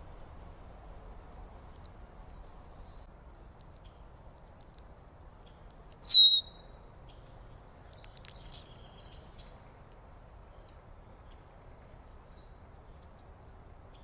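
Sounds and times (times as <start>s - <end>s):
low background noise: 0.0s - 14.0s
faint bird calls: 5.4s - 9.6s.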